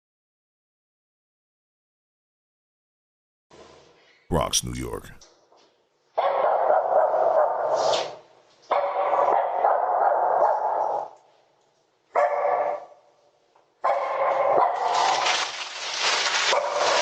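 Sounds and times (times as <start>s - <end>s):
dog barking: 6.2s - 7.8s, 8.7s - 11.2s, 12.1s - 13.0s, 13.8s - 15.2s, 16.5s - 17.0s.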